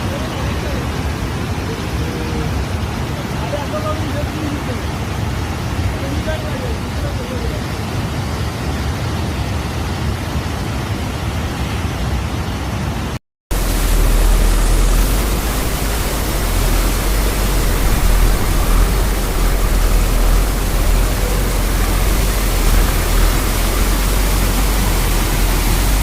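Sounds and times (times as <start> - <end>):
deep rumble: 13.5 - 26.0
heavy rain rushing: 13.5 - 26.0.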